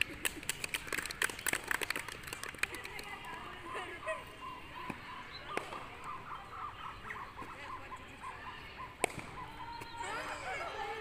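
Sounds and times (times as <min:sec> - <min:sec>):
birds chirping: 0:02.8 - 0:11.0.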